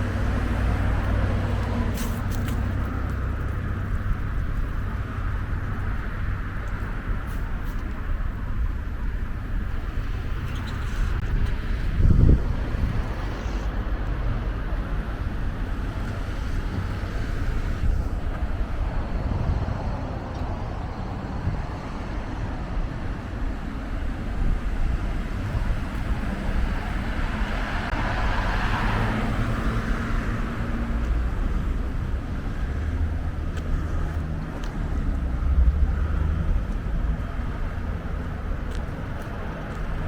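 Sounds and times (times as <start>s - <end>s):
road noise from passing cars: 0.0s - 40.0s
vehicle passing by: 25.4s - 38.2s.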